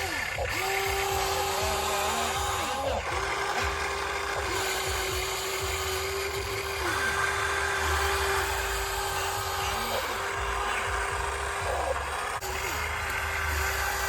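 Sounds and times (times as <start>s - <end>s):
excavator whine: 0.0s - 14.0s.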